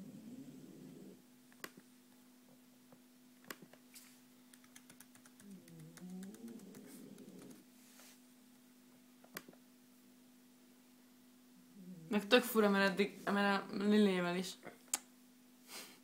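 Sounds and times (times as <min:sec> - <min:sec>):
steady low hum: 0:00.0 - 0:15.6
laptop keyboard clicks: 0:04.5 - 0:07.5.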